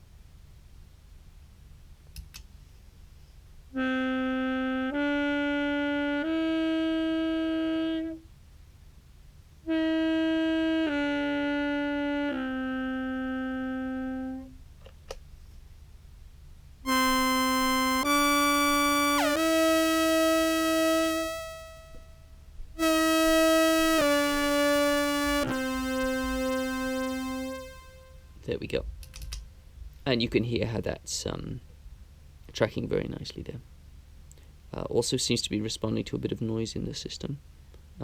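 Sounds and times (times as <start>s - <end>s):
contrabass clarinet held notes: 3.7s - 8.3s, 9.7s - 14.6s, 16.9s - 22.1s, 22.8s - 28.4s
synth doubling clarinet: 3.8s - 8.2s, 9.7s - 14.6s, 16.9s - 22.1s, 22.8s - 28.3s
falling synth glide: 16.9s - 21.9s, 22.8s - 28.2s.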